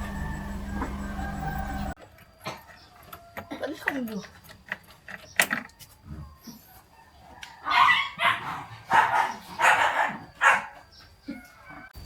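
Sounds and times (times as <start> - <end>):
dog barking: 7.6 - 10.8.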